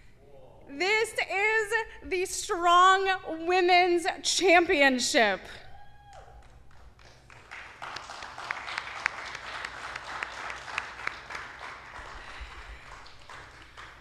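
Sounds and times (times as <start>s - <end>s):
small audience applauding: 6.0s - 14.0s.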